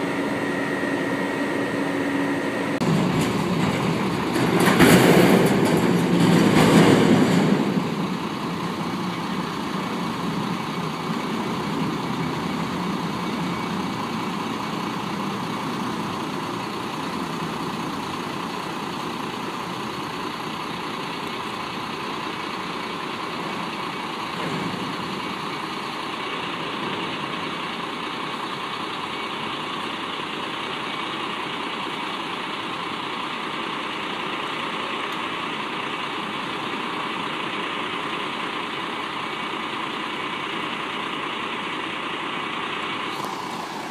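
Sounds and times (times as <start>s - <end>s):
garbage truck engine running: 0.0s - 43.9s.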